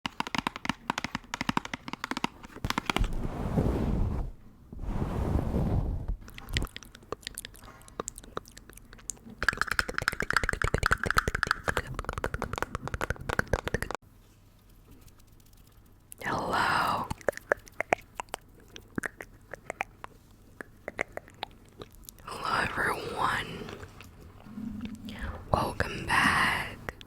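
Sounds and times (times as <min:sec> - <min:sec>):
crackly tapping and crunching: 0:00.0 - 0:03.1, 0:09.2 - 0:14.0.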